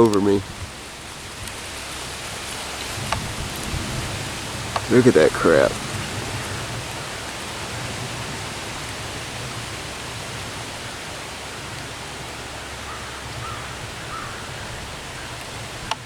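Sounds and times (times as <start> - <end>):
steady rushing noise: 1.2 - 12.9.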